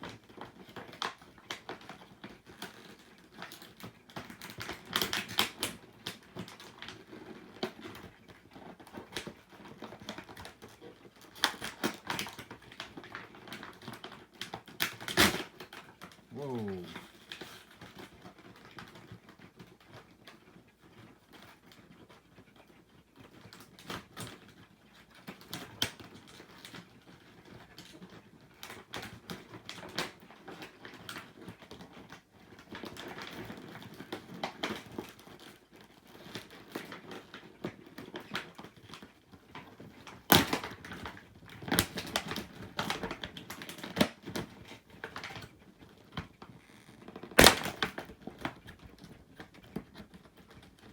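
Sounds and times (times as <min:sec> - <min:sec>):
packaging rustling and crinkling: 0:32.7 - 0:50.9.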